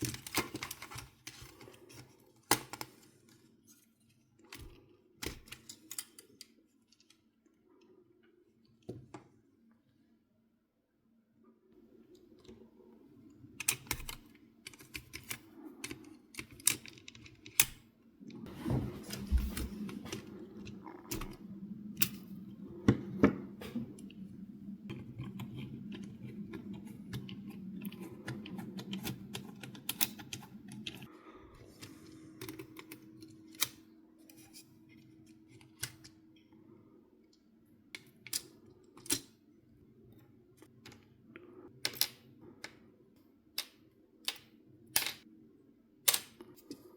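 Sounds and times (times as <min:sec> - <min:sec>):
plastic parts clicking: 0:00.0 - 0:03.4, 0:13.6 - 0:17.8, 0:24.9 - 0:31.1
low steady hum: 0:00.0 - 0:46.9.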